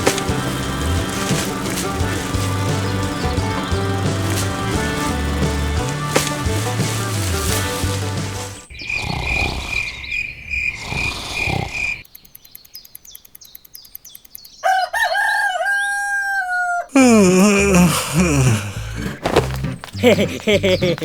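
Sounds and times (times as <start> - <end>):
rooster crowing: 14.6 - 16.9.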